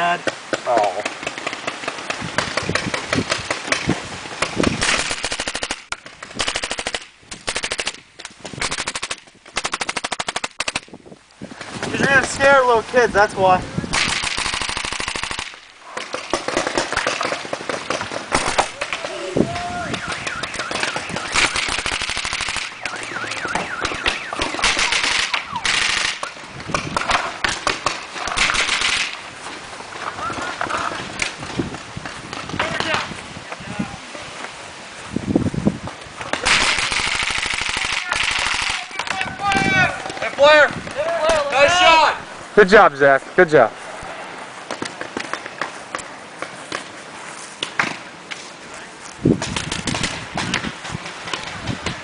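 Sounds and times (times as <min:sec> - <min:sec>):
paintball markers firing rapidly: 0:04.4 - 0:10.9, 0:14.0 - 0:19.0, 0:20.0 - 0:29.2, 0:36.4 - 0:39.2.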